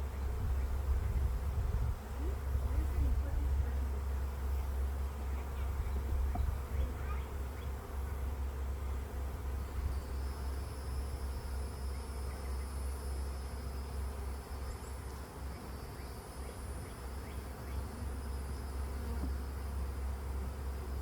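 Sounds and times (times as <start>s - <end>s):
steady low rumble: 0.0s - 12.0s
honeybees buzzing: 0.0s - 21.0s.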